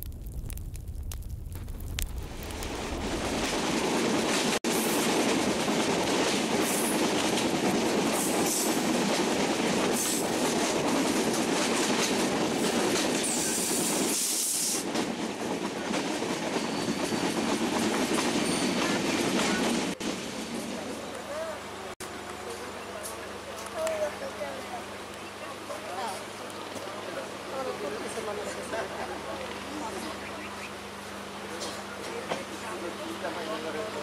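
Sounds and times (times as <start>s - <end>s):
train coaches rumbling on track: 3.1s - 34.0s.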